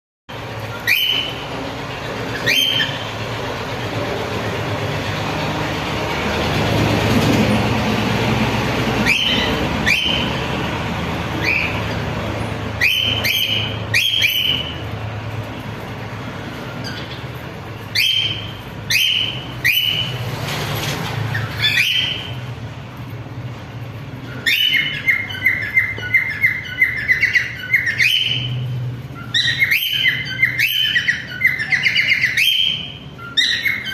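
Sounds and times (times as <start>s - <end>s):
cockatiel chirping: 0.6s - 1.5s, 2.3s - 3.1s, 9.0s - 10.4s, 11.4s - 12.0s, 12.8s - 14.9s, 16.8s - 20.2s, 21.3s - 22.4s, 24.3s - 28.6s, 29.2s - 33.9s.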